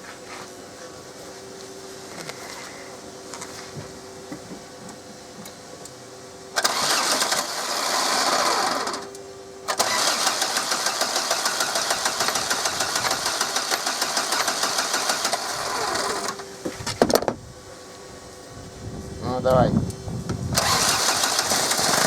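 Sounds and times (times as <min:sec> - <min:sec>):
diesel engine cranking on starter: 0:06.6 - 0:16.5, 0:20.5 - 0:22.0.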